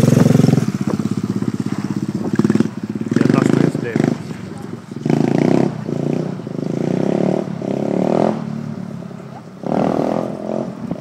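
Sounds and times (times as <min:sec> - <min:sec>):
motorbike engine revving: 0:00.0 - 0:11.0.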